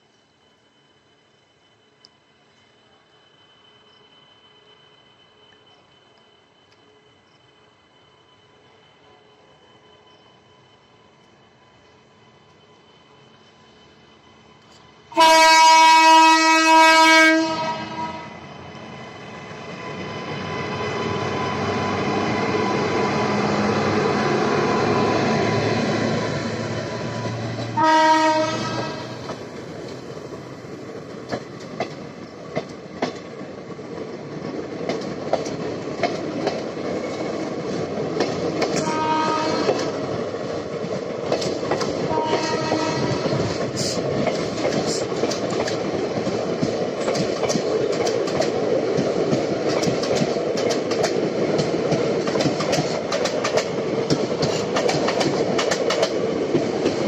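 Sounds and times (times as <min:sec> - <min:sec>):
locomotive horn: 0:15.1 - 0:18.4, 0:27.6 - 0:29.3, 0:38.7 - 0:40.0, 0:42.1 - 0:44.0
train wheels clicking over rail joints: 0:19.3 - 0:57.0.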